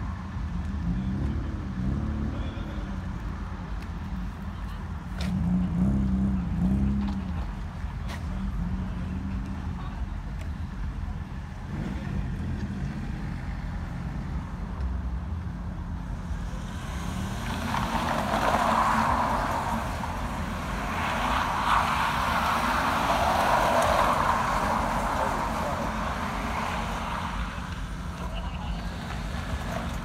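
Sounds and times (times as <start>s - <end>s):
cars driving past slowly: 0.0s - 30.0s.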